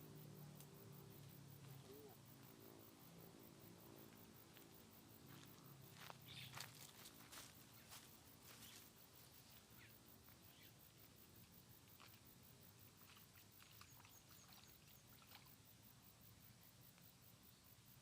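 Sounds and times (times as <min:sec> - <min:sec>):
faint high chirps: 0:01.6 - 0:02.8, 0:05.9 - 0:06.8, 0:08.5 - 0:11.0.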